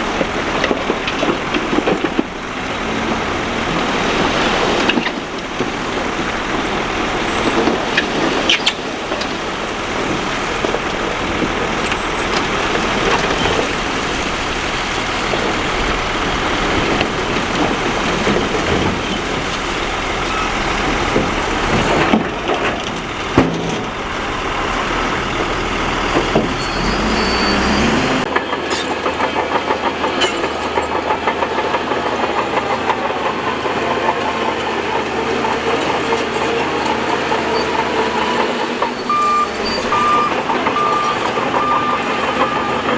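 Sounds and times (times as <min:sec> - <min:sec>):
heavy machinery engines rumbling: 0:00.0 - 0:42.9.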